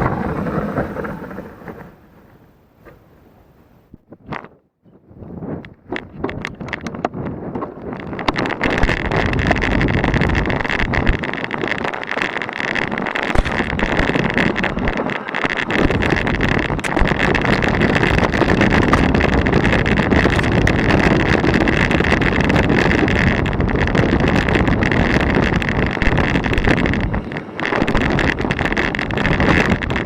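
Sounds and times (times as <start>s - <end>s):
wind on microphone: 0.0s - 30.0s
tyres crunching over loose stones: 6.0s - 30.0s
bike clattering over rocks: 8.0s - 30.0s.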